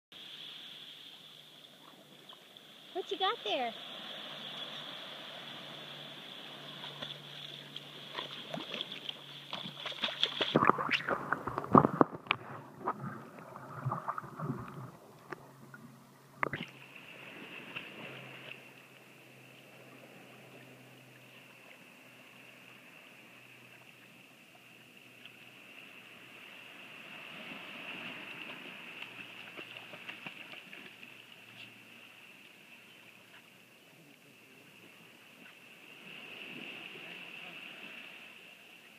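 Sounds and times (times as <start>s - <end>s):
water splashing around swimming dog: 6.6s - 15.0s, 25.2s - 31.9s.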